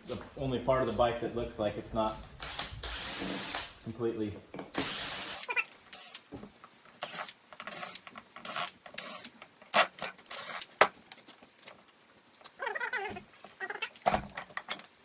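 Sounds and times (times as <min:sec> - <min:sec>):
tool scraping and hissing bursts: 0:02.4 - 0:03.8, 0:04.8 - 0:06.2, 0:07.0 - 0:10.8.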